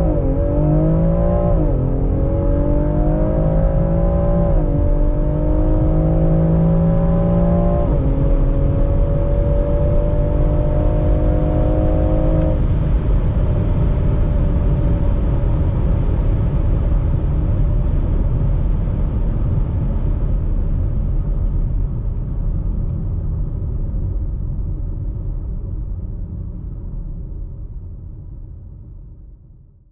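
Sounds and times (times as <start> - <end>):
car engine accelerating hard: 0.0 - 20.9
road and wind noise: 0.0 - 29.6.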